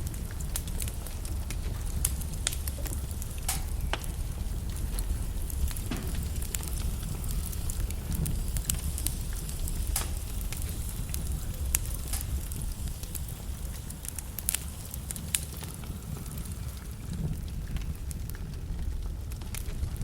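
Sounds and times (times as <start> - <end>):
logs crackling in a fireplace: 0.0 - 20.0.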